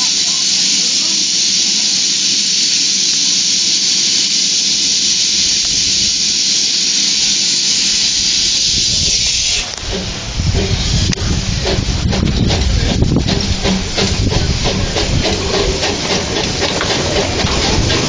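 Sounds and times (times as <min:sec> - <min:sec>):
steam locomotive venting steam: 0:00.0 - 0:18.0.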